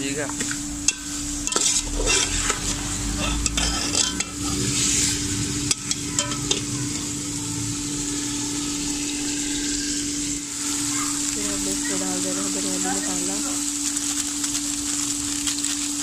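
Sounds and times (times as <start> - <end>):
chicken sizzling in oil: 0.0 - 16.0
metal spatula scraping pot: 0.8 - 7.1.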